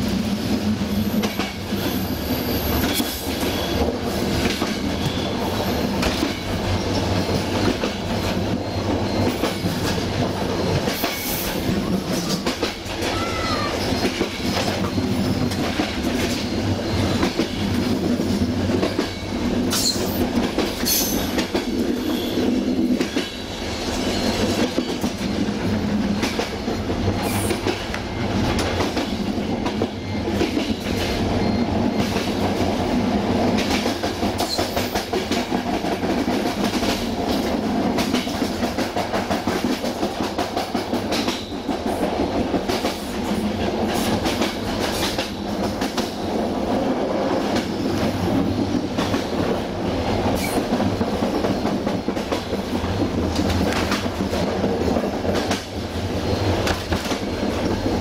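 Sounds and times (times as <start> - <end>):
train rail rumble: 0.0 - 58.0
wheels clacking over rail joints: 47.1 - 58.0.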